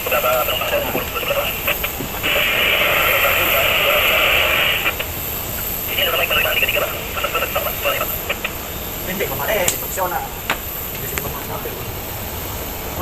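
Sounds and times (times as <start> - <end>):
speech over small loudspeaker: 0.0 - 5.0, 5.8 - 10.3
radio static hiss: 0.0 - 13.0.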